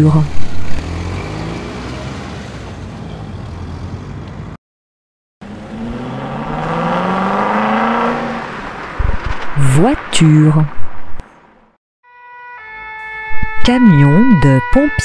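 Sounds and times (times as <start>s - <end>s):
sports car accelerating: 0.6s - 2.6s, 5.4s - 9.0s.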